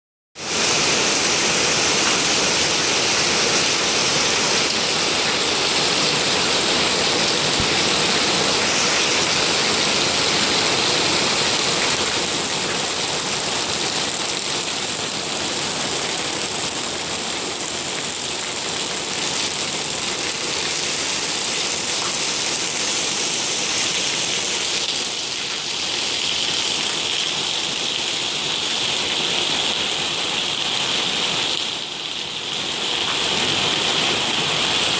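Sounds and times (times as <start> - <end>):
heavy rain hissing: 0.4 - 17.8
higher-pitched hiss: 8.6 - 9.9.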